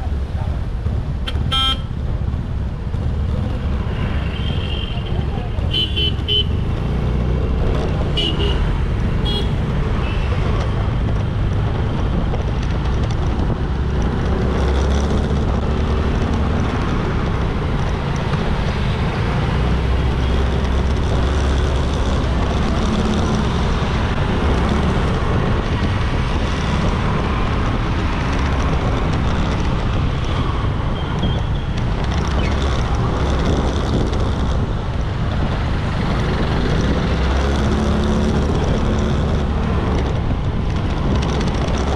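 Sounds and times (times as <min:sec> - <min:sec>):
road noise: 0:00.0 - 0:41.9
wind rushing over microphone: 0:05.2 - 0:41.9.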